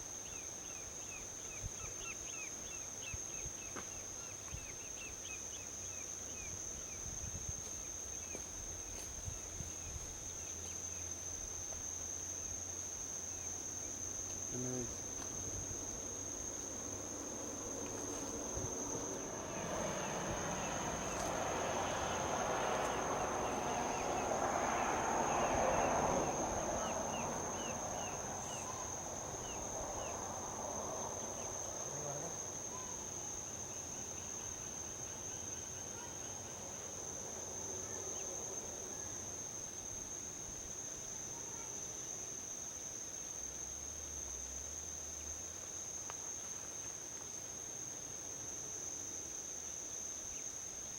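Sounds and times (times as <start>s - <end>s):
insects trilling: 0.0s - 50.9s
vehicle passing on highway: 15.0s - 35.0s.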